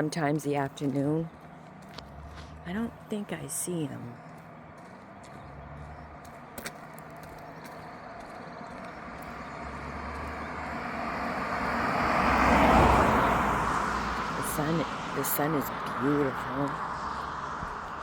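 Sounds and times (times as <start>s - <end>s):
vehicle passing by: 1.3s - 3.1s, 3.8s - 18.0s.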